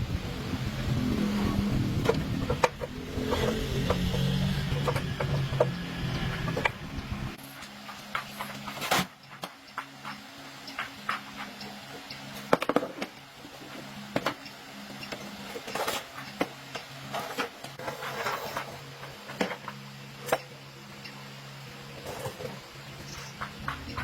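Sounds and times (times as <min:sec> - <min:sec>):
steady low hum: 0:00.0 - 0:24.0
metal scraping: 0:00.7 - 0:09.2.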